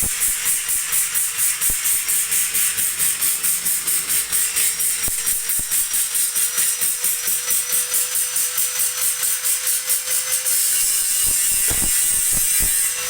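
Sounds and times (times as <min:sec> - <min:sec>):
rhythmic hissing strokes: 0:00.0 - 0:06.0.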